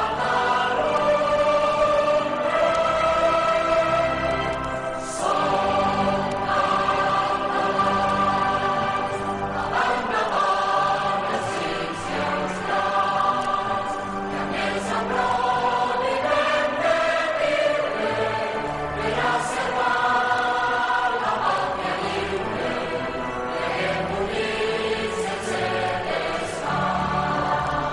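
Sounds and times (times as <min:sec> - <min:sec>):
choir singing held chords: 0:00.0 - 0:27.9.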